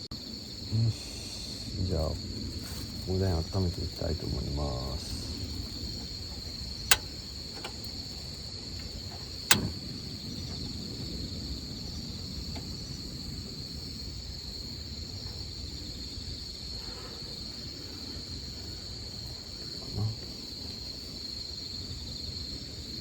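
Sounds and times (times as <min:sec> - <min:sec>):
insects trilling: 0:00.0 - 0:23.0
sharp click: 0:06.9 - 0:07.9, 0:09.5 - 0:09.8.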